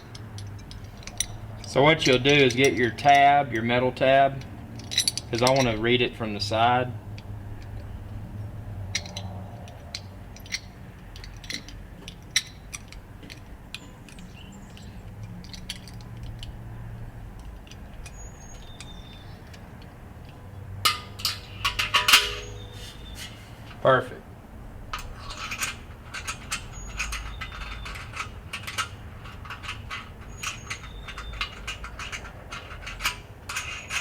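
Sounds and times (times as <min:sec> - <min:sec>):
metallic clicks and taps: 0:00.0 - 0:03.7, 0:08.9 - 0:16.6
sharp metal clinks: 0:20.9 - 0:23.2.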